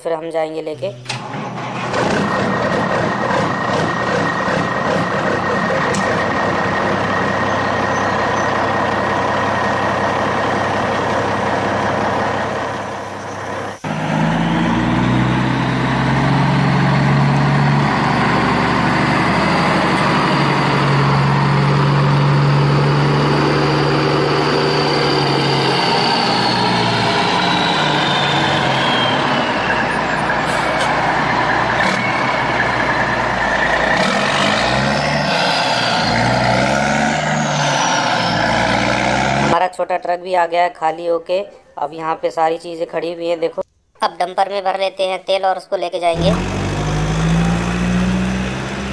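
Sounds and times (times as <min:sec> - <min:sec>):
truck engine running: 0:01.1 - 0:39.6, 0:46.2 - 0:48.9
engine hum with falling whine: 0:02.2 - 0:39.5.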